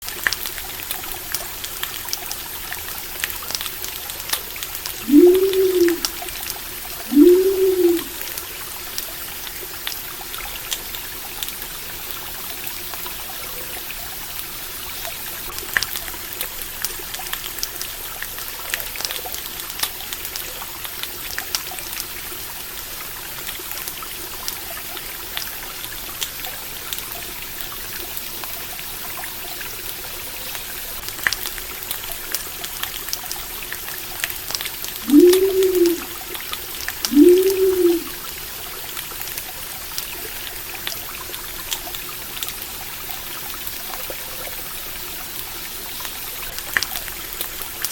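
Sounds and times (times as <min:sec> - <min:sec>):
campfire crackles: 0:00.0 - 0:47.9
stream water flowing: 0:00.0 - 0:47.9
low rising and falling calls: 0:05.0 - 0:06.2, 0:07.1 - 0:08.2, 0:35.0 - 0:36.2, 0:37.1 - 0:38.2.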